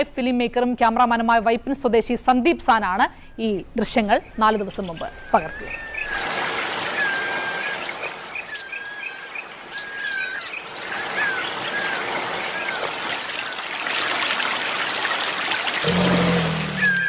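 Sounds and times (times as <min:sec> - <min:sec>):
birds chirping: 0:03.8 - 0:17.0
river water running: 0:04.3 - 0:17.0
bird whistled notes: 0:16.2 - 0:17.0.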